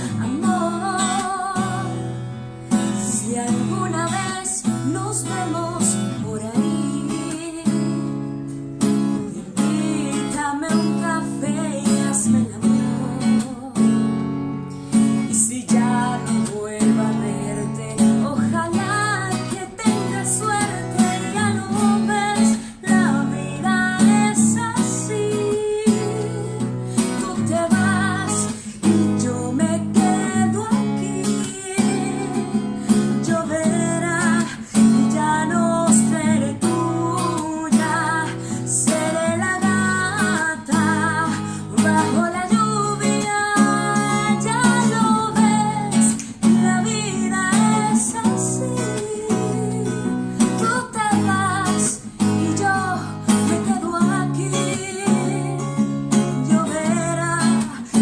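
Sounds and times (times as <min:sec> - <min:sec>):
acoustic guitar ballad: 0:00.0 - 0:58.0.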